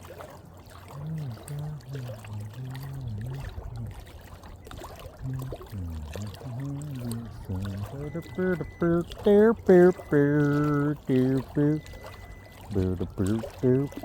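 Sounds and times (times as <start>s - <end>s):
man talking quietly muffled: 5.2s - 11.9s, 12.6s - 14.0s.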